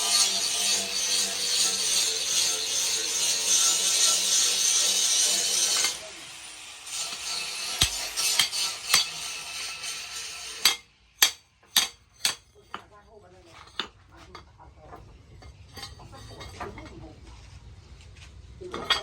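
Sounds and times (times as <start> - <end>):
abrasive tool rasping steel: 0.0 - 12.8.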